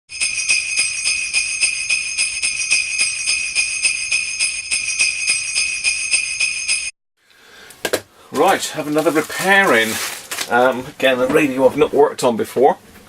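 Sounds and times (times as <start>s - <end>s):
sleigh bells shaken: 0.1s - 6.9s.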